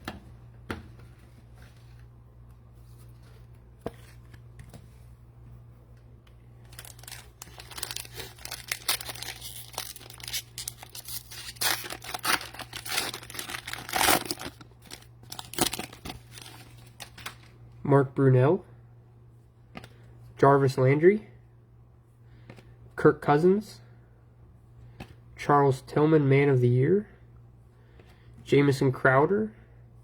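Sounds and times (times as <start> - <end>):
cellophane wrapper tearing and crinkling: 6.7 - 17.5.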